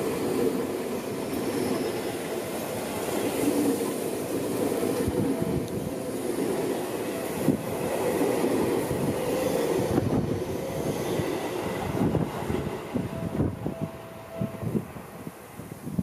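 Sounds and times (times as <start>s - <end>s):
steel wheels rumbling on rails: 0.0s - 16.0s.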